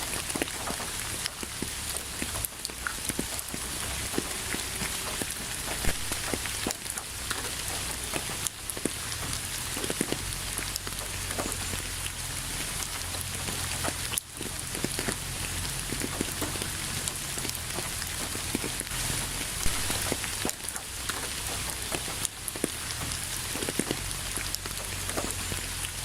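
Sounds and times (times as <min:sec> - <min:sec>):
raindrops ticking on surface: 0:00.0 - 0:26.0
steady rain: 0:00.0 - 0:26.0.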